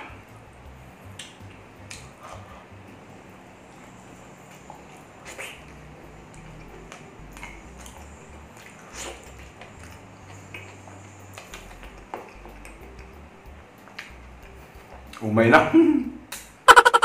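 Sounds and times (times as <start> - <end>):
man chewing food: 0.0 - 15.2
wet mouth smacks and clicks: 1.1 - 2.2, 5.2 - 13.2, 16.3 - 16.5.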